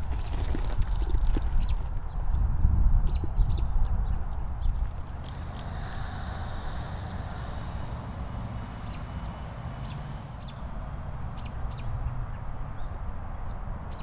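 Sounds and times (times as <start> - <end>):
low background rumble: 4.6 - 12.3.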